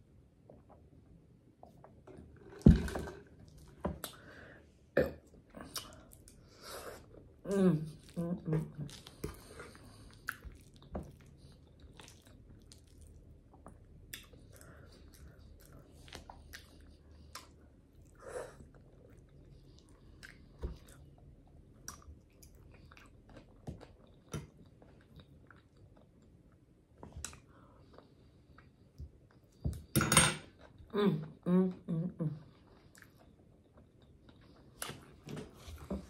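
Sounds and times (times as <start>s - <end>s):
chewing noodles: 5.6s - 26.4s.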